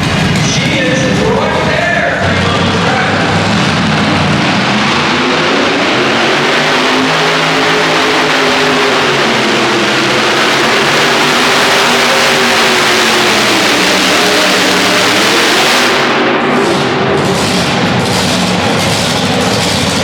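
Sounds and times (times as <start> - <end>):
tractor engine running hard: 0.0 - 20.0.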